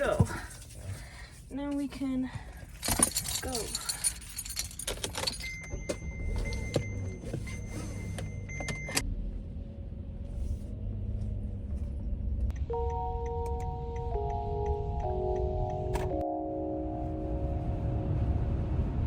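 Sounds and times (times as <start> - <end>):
engine running: 5.7 - 19.0.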